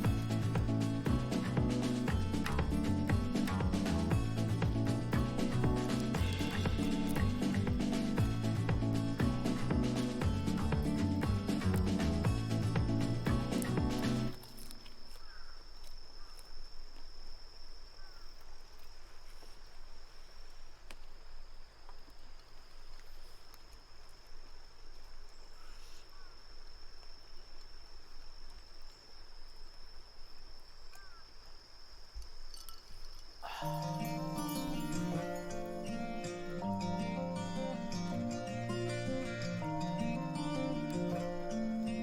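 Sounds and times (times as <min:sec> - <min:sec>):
insects trilling: 0:00.0 - 0:42.0.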